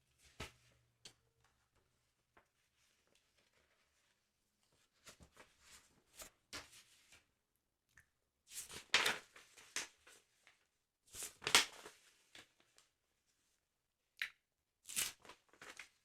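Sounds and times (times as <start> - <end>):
paper pages rustling: 15.2 - 16.0.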